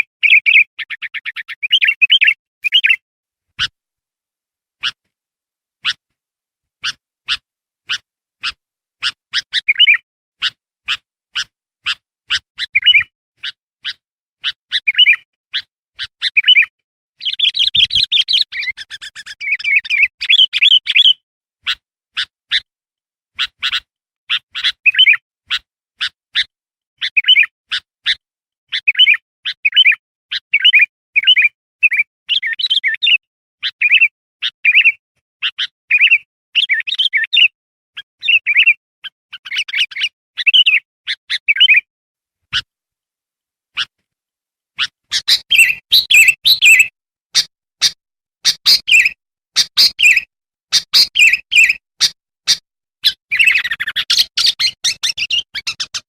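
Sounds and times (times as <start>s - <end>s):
bird chattering: 0.0s - 3.0s, 6.8s - 22.6s, 23.4s - 30.0s, 34.7s - 37.5s, 44.8s - 56.0s
bird chirping and warbling: 0.0s - 3.0s, 4.8s - 5.0s, 6.8s - 22.7s, 23.4s - 41.9s, 44.8s - 56.0s.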